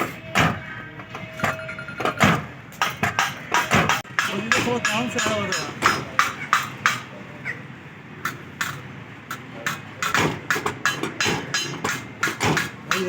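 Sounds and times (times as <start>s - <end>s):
sharp knocks and taps: 8.2s - 13.0s.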